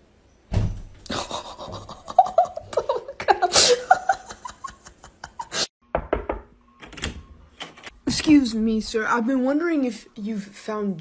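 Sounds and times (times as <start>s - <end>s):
person laughing: 1.1s - 5.7s.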